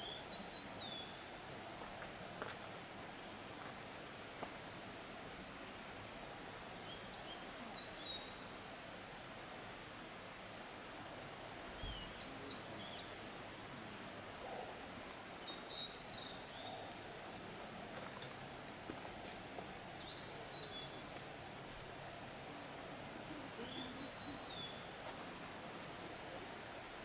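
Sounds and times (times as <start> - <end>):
outdoor background hiss: 0.0 - 27.0
small birds chirping: 23.6 - 25.3.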